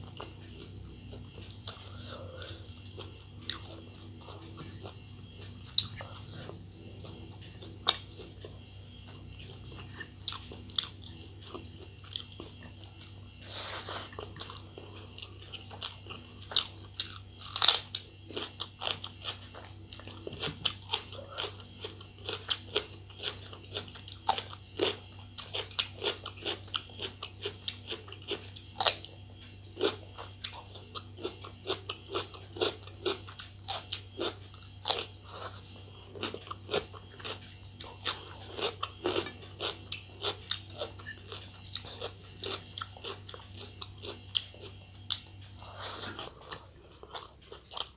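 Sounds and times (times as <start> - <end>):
person biting and chewing food: 13.0 - 22.7, 32.2 - 47.9.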